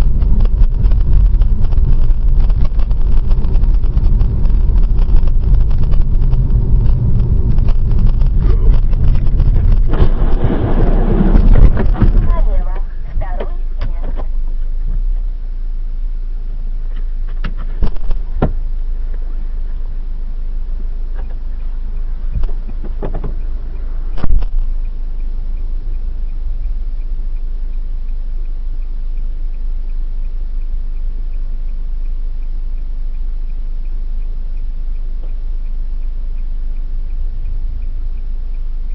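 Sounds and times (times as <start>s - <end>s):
faint regular ticking: 0.0s - 15.0s, 15.7s - 38.9s
steady low rumble: 0.0s - 38.9s
sharp knocks and thumps: 0.1s - 14.3s, 17.3s - 18.6s, 22.4s - 23.4s.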